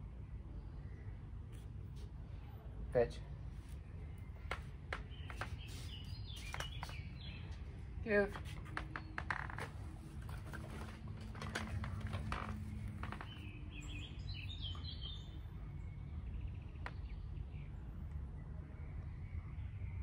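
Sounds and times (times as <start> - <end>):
small bird chirping: 3.7 - 9.2, 12.5 - 17.8
rustling and clicking: 4.4 - 7.6, 8.3 - 13.6.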